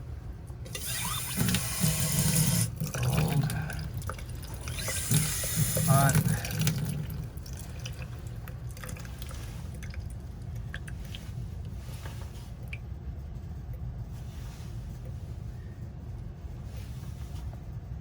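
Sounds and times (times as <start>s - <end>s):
water dripping from faucet: 2.5s - 11.3s
steady low rumble: 2.7s - 18.0s.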